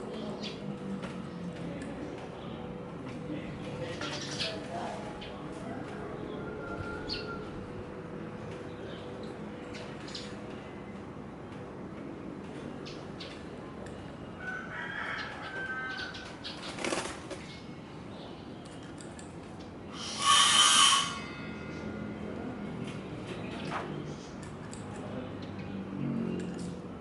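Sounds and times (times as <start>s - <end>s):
harsh bird call: 19.9s - 22.0s.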